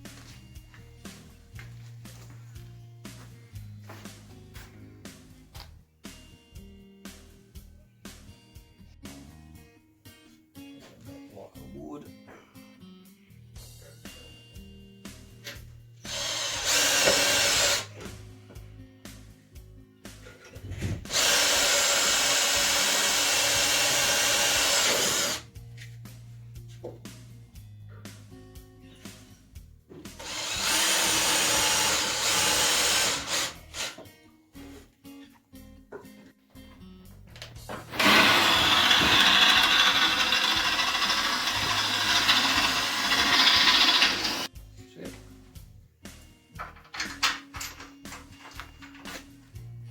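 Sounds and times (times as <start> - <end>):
power drill running: 16.1 - 18.0, 21.1 - 25.4, 30.2 - 34.0, 37.9 - 44.5.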